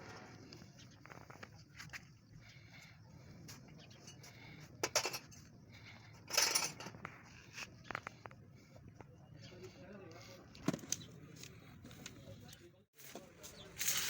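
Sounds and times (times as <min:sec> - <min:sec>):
metal tools clinking: 0:04.0 - 0:05.5, 0:06.2 - 0:07.0
metal parts clattering: 0:06.3 - 0:07.0.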